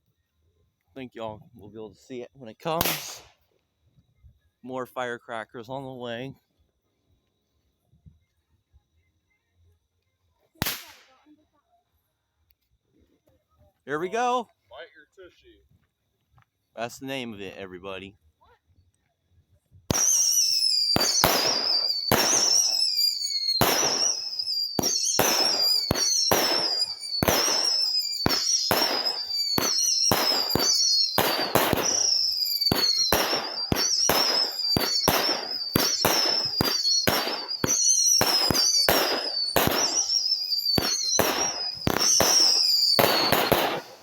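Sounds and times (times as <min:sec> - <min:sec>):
firework crackling: 0:02.7 - 0:03.3, 0:10.6 - 0:11.2, 0:19.9 - 0:44.0
firework bangs: 0:02.8 - 0:03.3, 0:10.6 - 0:11.2, 0:19.9 - 0:44.0
firework falling whistle: 0:19.9 - 0:44.0.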